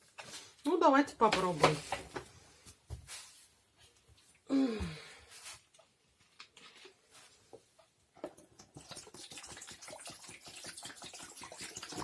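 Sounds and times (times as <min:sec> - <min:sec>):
water pouring into a tank: 0:08.2 - 0:12.0.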